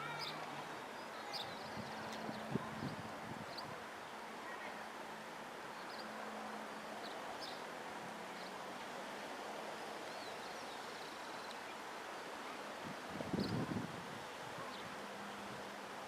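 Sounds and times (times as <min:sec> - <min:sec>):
steady outdoor hiss: 0:00.0 - 0:16.0
wind buffeting microphone: 0:01.5 - 0:03.8, 0:12.8 - 0:14.9.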